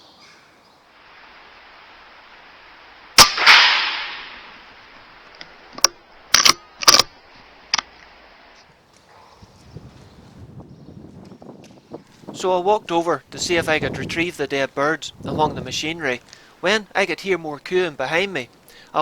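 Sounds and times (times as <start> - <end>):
air rifle shot: 3.2 - 4.8
sharp clicks and knocks: 5.3 - 8.0.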